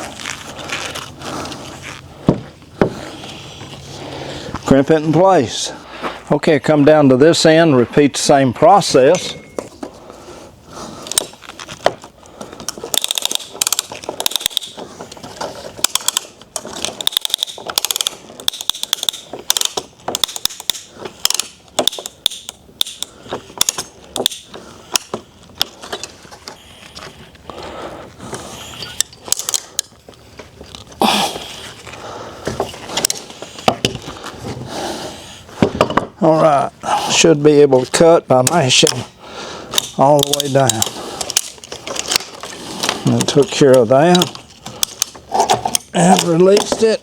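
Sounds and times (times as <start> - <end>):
strapping tensioner ratchet clicks: 12.9 - 14.8, 15.8 - 25.8, 39.7 - 42.3.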